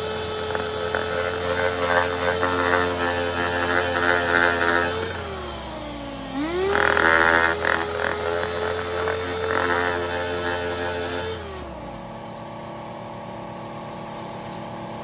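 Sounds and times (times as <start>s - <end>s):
sander pad scrubbing metal: 0.0s - 11.7s
sander whining: 0.0s - 12.4s.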